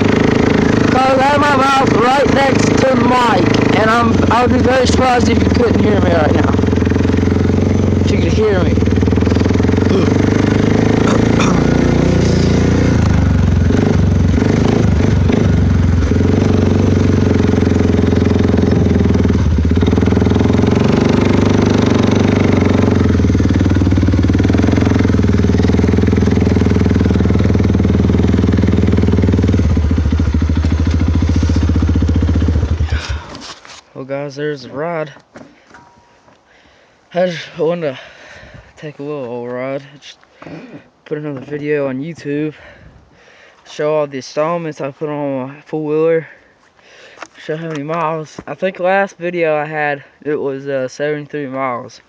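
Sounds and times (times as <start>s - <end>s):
atv engine running loud: 0.0s - 33.5s.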